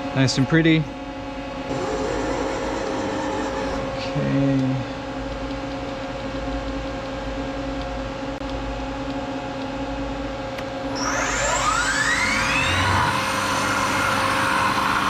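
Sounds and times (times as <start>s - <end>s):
motor whine: 1.7s - 4.6s, 10.8s - 15.0s
milling machine humming: 1.7s - 5.2s, 10.9s - 15.0s.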